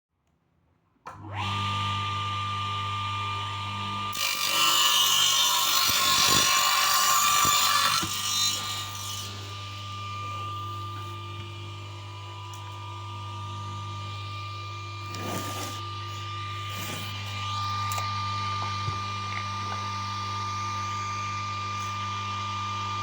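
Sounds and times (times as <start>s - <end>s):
electric saw whining: 1.2s - 23.0s
saw cutting plywood: 4.1s - 12.9s, 13.7s - 22.1s.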